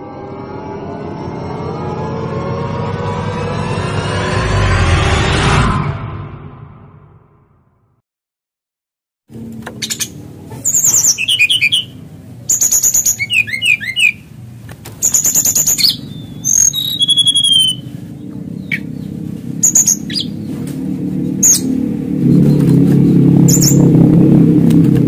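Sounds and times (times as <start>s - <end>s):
steady low hum: 9.3s - 25.0s
bird rattles and whistles: 15.0s - 17.8s.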